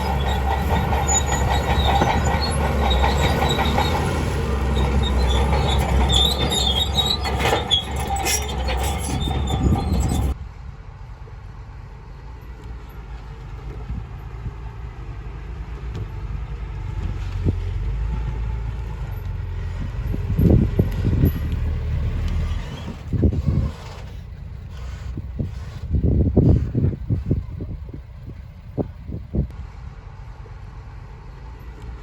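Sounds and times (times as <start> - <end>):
machinery squealing and clanking: 0.0 - 10.4, 19.0 - 27.6
engine drone: 0.0 - 32.0.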